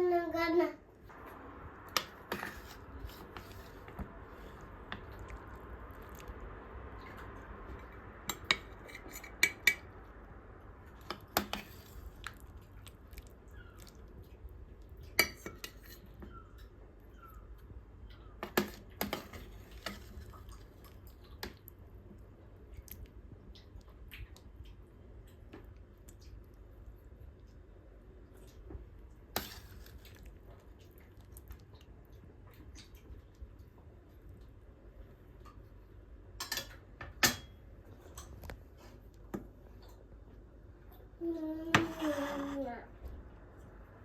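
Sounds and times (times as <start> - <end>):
low steady hum: 0.0 - 44.0
utensils clinking on pans and dishes: 36.4 - 38.4.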